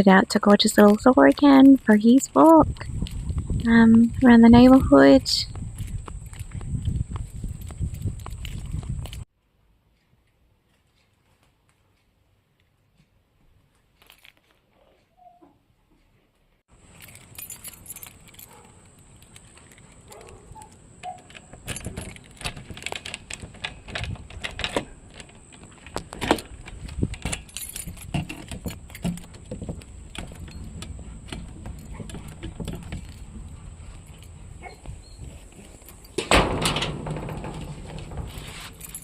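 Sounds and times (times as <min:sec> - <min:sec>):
keys jangling and clinking: 0:00.4 - 0:09.2, 0:16.9 - 0:39.0.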